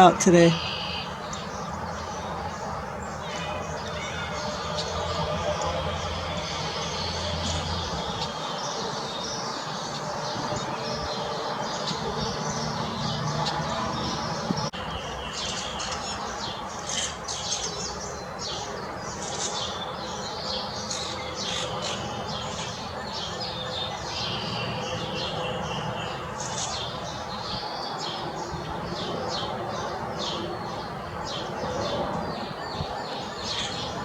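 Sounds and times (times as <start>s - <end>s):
outdoor background hiss: 0.0s - 28.8s
songbirds chirping: 0.0s - 34.0s.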